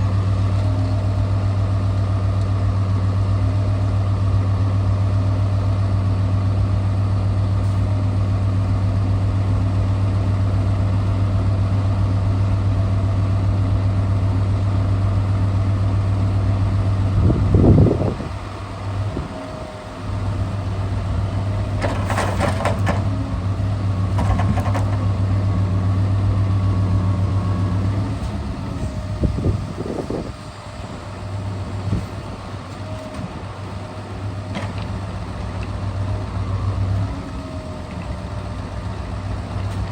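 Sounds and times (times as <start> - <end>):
diesel truck engine running: 0.0 - 39.9
crane knocks and clatters: 18.4 - 29.7, 30.5 - 36.1.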